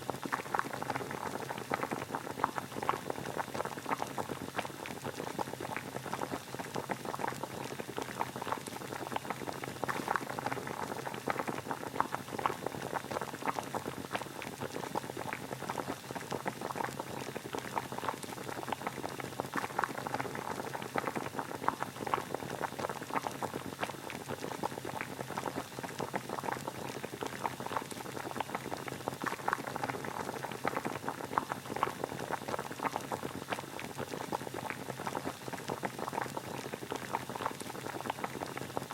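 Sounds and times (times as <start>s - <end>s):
water boiling: 0.0s - 38.9s.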